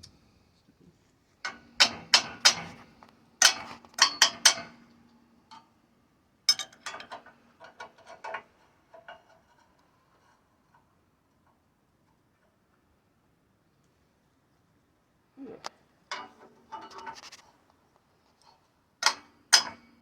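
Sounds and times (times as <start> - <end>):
hammer striking steel: 19.0 - 19.9.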